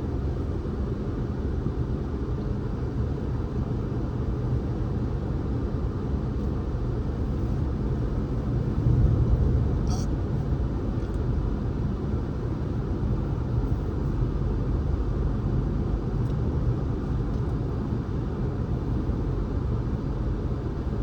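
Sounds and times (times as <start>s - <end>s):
car driving rumble: 6.4s - 21.0s.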